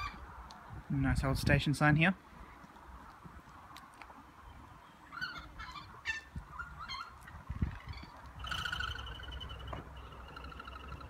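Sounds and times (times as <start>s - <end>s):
birds calling: 0.0s - 0.8s, 4.0s - 11.0s
trilled bird call: 4.8s - 11.0s.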